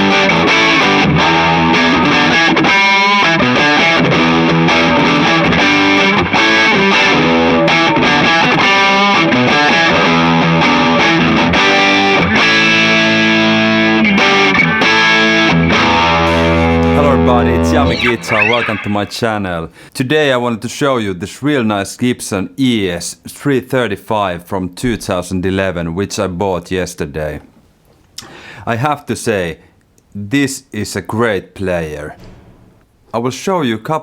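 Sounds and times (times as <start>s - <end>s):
distorted electric guitar riff: 0.0s - 19.3s.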